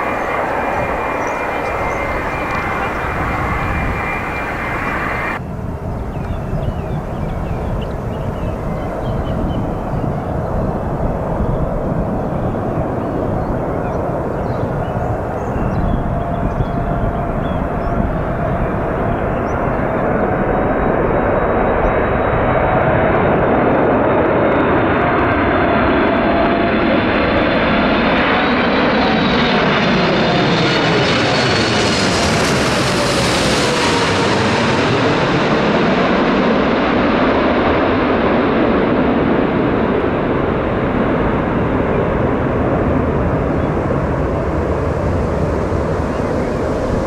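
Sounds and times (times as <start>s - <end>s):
jet airliner engines passing: 0.0s - 47.0s.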